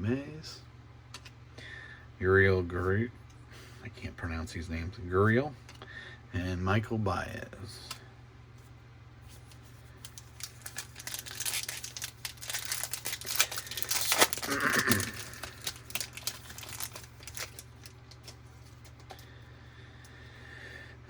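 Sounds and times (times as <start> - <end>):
foil wrapper crinkling and tearing: 9.9 - 19.0.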